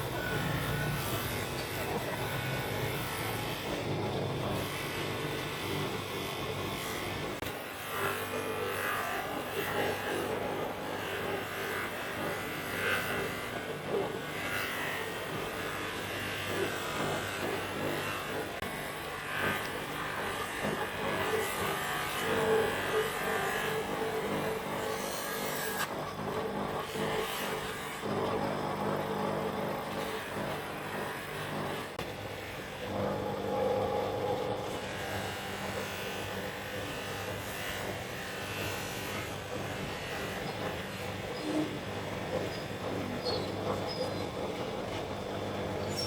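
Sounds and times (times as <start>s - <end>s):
handheld electric tool buzzing: 0.0s - 46.0s
rough grinding sound: 0.0s - 46.0s.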